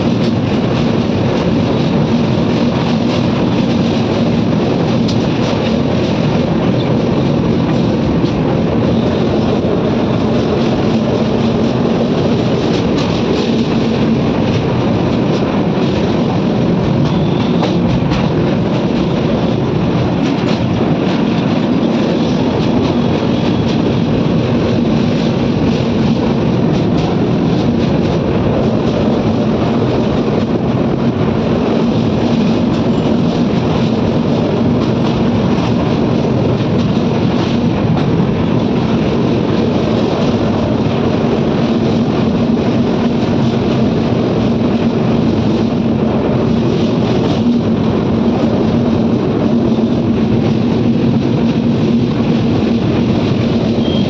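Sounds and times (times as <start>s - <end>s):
train clatter: 0.0s - 54.0s
train rumbling over bridge: 0.0s - 54.0s.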